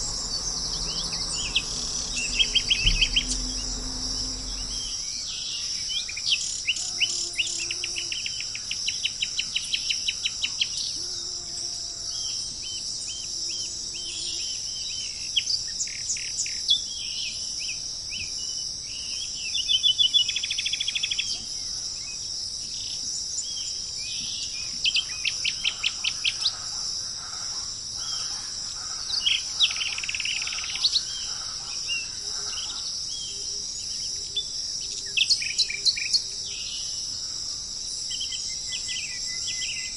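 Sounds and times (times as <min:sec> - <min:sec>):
birds chirping and trilling: 0:00.0 - 0:11.2, 0:12.1 - 0:39.9
high-pitched insect buzz: 0:00.0 - 0:15.3.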